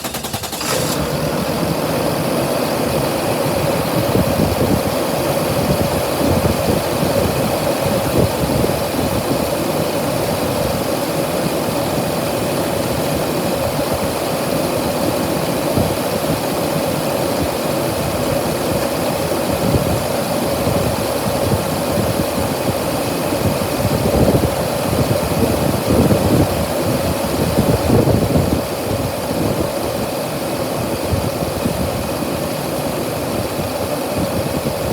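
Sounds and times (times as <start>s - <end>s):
truck engine idling: 0.0s - 26.4s.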